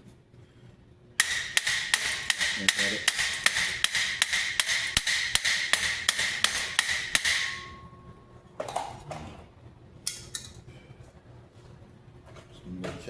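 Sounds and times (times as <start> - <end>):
hammer striking steel: 1.2 - 7.9.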